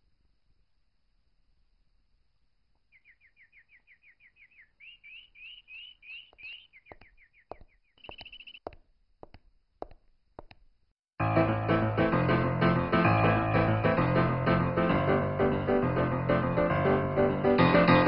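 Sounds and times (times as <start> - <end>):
small bird chirping: 2.8 - 8.8
sharp clicks: 6.2 - 10.6.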